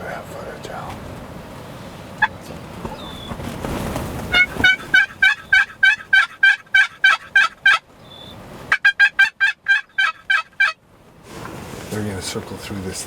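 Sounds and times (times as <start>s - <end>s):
wind buffeting microphone: 0.7s - 6.1s
turkey yelps: 4.3s - 10.8s.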